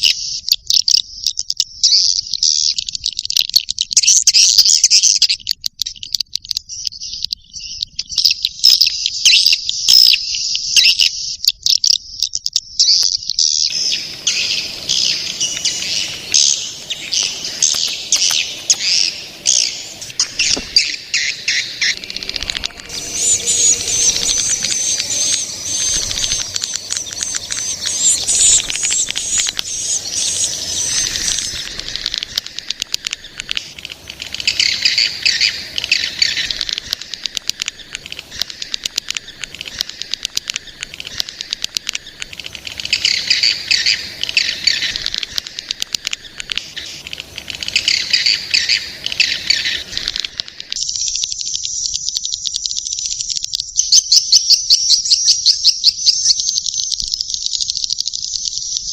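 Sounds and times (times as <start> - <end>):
high insect-like trill: 13.7 - 52.6
swiftlets twittering: 13.7 - 52.6.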